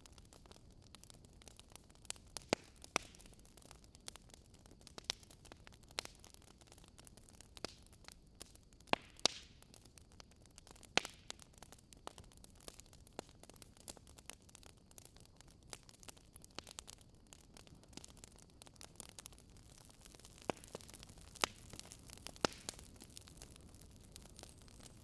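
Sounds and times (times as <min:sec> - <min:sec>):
wood fire crackling and popping: 0:00.0 - 0:25.0
fire hissing: 0:17.6 - 0:25.0.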